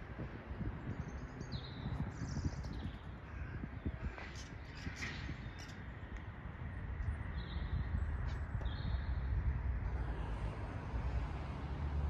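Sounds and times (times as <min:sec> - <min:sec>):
wild birds chirping: 0:00.7 - 0:06.1.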